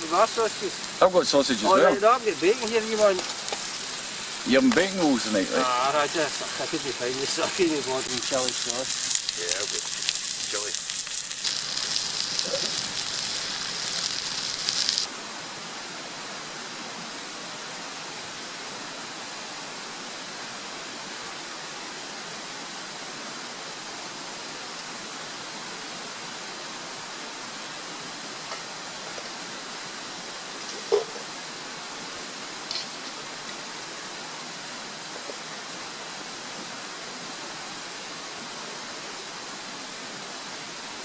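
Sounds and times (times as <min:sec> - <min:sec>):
steak sizzling over campfire: 0:00.0 - 0:15.1, 0:27.4 - 0:37.1
steady hiss: 0:00.0 - 0:41.0.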